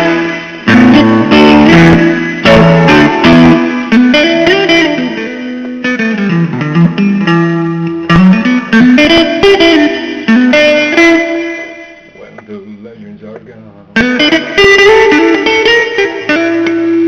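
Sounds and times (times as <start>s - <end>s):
blues guitar lead: 0.0s - 17.0s.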